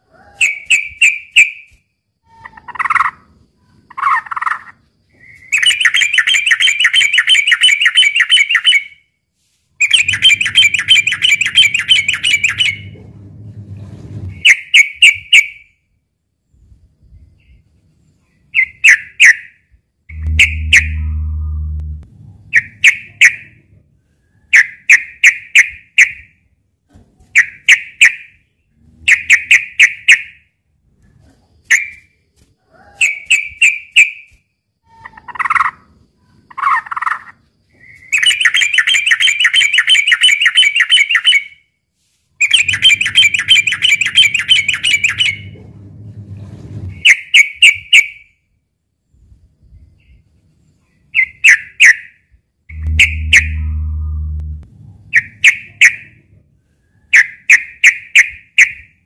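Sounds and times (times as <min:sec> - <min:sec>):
bulbul fighting call: 0:20.1 - 0:21.8, 0:52.7 - 0:54.4.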